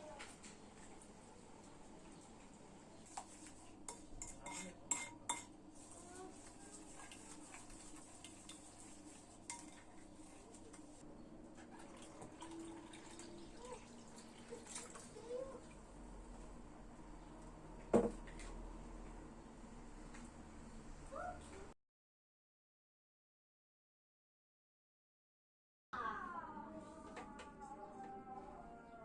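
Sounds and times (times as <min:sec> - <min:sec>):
pots and utensils clinking: 0:03.9 - 0:05.6, 0:09.4 - 0:10.1.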